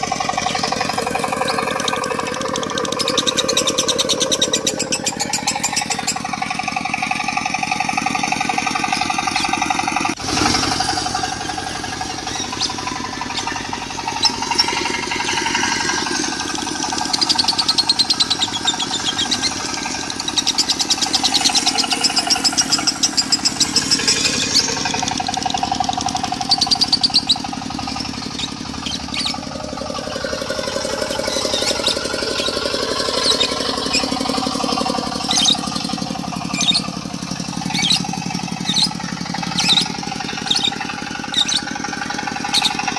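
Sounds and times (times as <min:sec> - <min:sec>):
lovebirds chattering trills: 0:00.0 - 0:10.2, 0:10.8 - 0:42.9
diesel engine chugging: 0:00.0 - 0:42.9.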